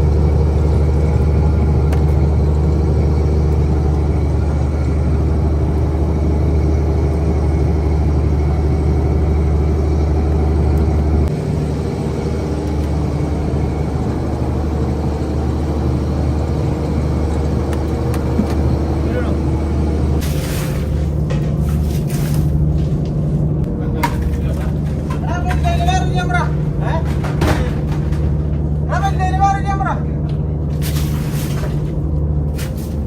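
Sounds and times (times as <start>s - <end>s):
boat engine humming: 0.0s - 33.0s.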